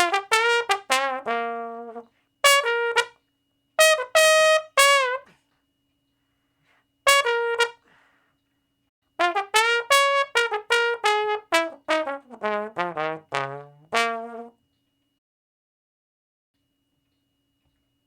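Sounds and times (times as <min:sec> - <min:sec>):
tuba notes: 0:00.0 - 0:03.2, 0:03.8 - 0:05.4, 0:07.1 - 0:07.9, 0:09.2 - 0:14.6.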